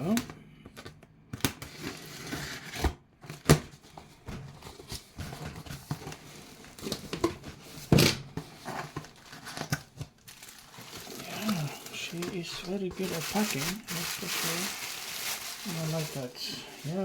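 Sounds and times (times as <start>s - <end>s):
packing material crinkling: 8.6s - 17.0s.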